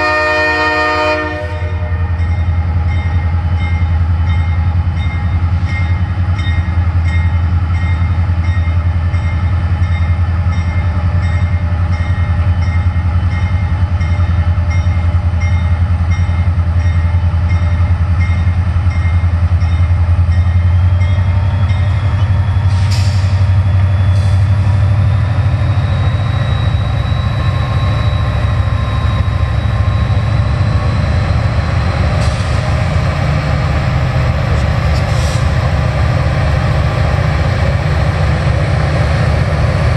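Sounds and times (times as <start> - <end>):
diesel locomotive engine rumble: 0.0 - 39.9
rising train whine: 0.0 - 39.9
crossing bell dinging: 1.0 - 22.4.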